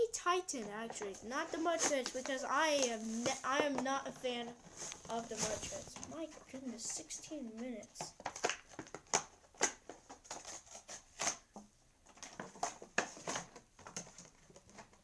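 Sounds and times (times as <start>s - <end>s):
toy packaging crinkling: 0.9s - 7.0s.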